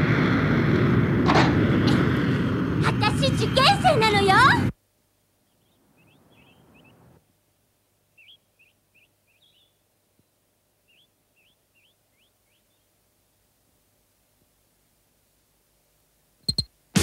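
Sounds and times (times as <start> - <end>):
small birds chirping: 5.4 - 7.2, 8.0 - 13.0, 16.4 - 16.7.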